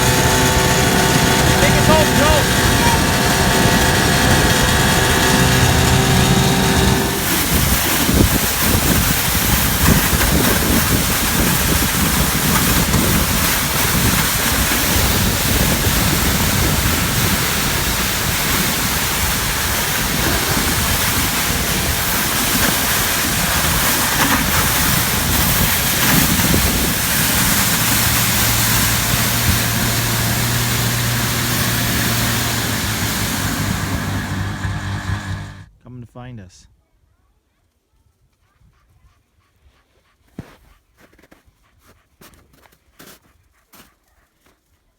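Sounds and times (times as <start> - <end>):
snowmobile engine hum: 0.0 - 35.7.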